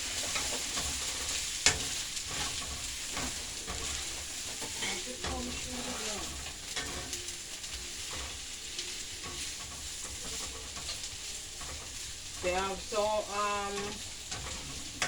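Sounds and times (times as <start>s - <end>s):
food sizzling in hot oil: 0.0s - 15.0s
person speaking: 4.8s - 6.3s, 12.4s - 14.0s.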